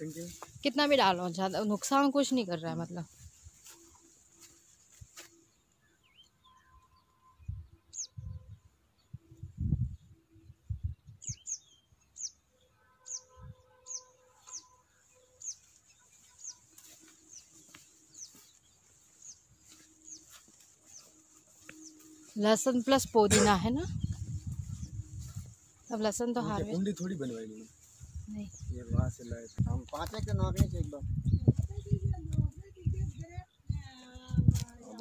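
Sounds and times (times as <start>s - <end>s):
bird chirping: 5.4s - 9.2s, 9.9s - 29.6s.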